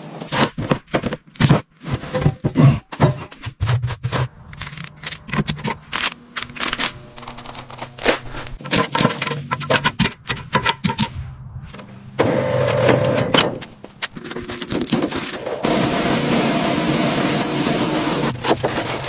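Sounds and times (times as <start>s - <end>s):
low hum: 4.0s - 14.6s
rush of noise: 11.1s - 14.0s.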